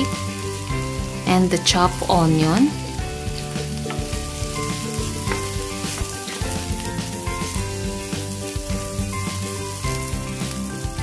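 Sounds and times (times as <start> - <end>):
background music: 0.0 - 11.0
vegetables sizzling in hot oil: 0.0 - 11.0
wooden spatula stirring in pan: 2.9 - 10.9.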